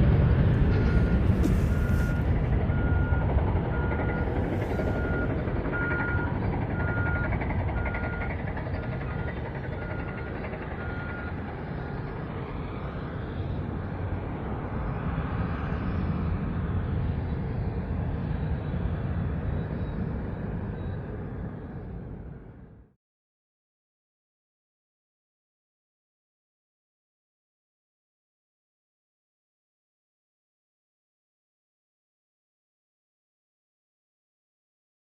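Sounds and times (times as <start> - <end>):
low engine rumble: 0.0 - 22.9
reversing alarm beeping: 0.7 - 11.5.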